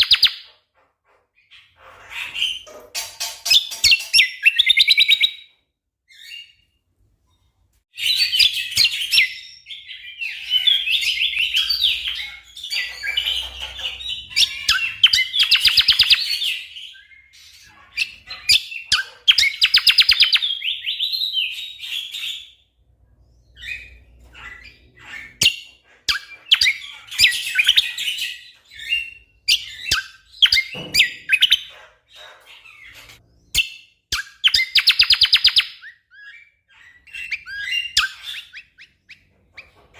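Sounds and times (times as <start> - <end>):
bird singing trilled phrases: 0.0 - 0.5, 8.0 - 31.7, 32.6 - 39.8.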